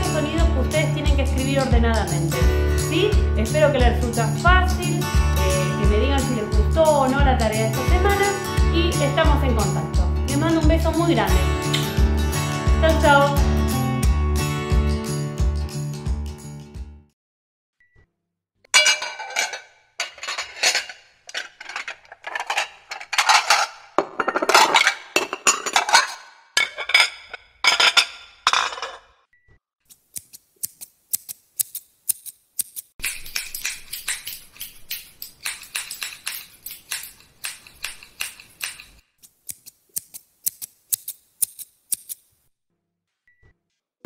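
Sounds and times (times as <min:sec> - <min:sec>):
dishes clattering: 0:18.8 - 0:29.2.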